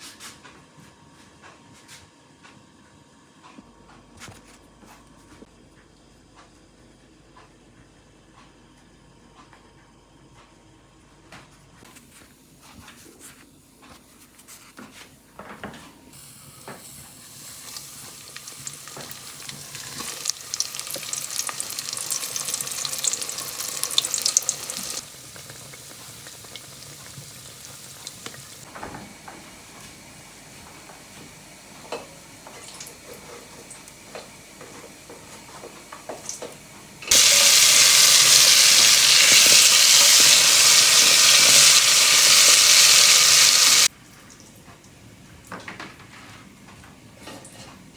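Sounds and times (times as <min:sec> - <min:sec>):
food sizzling in hot fat: 0:16.2 - 0:28.7, 0:37.1 - 0:43.9
rising hiss: 0:37.1 - 0:43.9.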